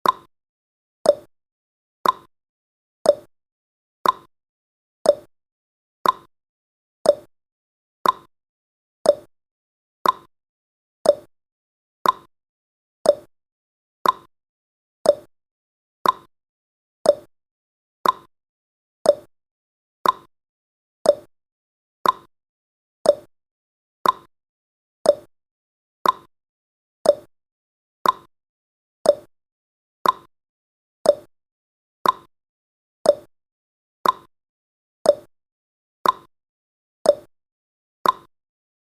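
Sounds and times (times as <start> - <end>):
clock ticking: 2.0 - 2.3, 6.0 - 6.3, 8.0 - 8.3, 10.0 - 10.3, 12.0 - 12.3, 13.1 - 13.3, 14.0 - 14.3, 15.1 - 15.3, 16.0 - 16.3, 18.0 - 18.3, 20.0 - 20.3, 22.0 - 22.3, 24.0 - 24.3, 25.1 - 25.3, 26.0 - 26.3, 27.1 - 27.3, 28.0 - 28.3, 29.1 - 29.3, 30.0 - 30.3, 32.0 - 32.3, 33.1 - 33.3, 34.0 - 34.3, 36.0 - 36.3, 38.0 - 38.3.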